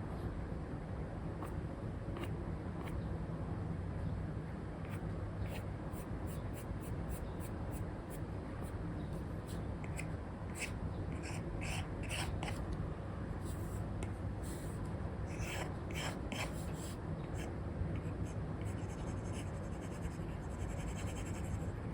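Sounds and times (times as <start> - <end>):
stylus scratching on tablet: 9.5 - 12.6, 15.3 - 21.9.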